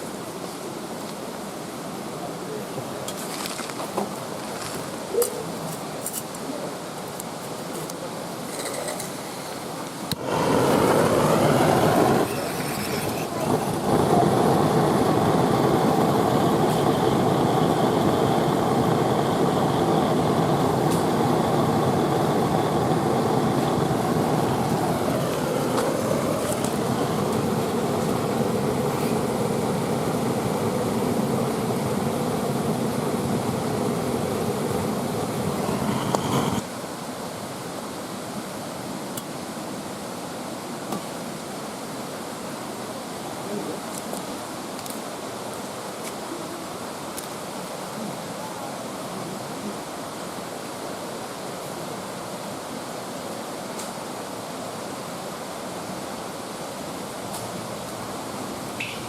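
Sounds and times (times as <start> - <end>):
vehicle engine humming: 13.2 - 36.6.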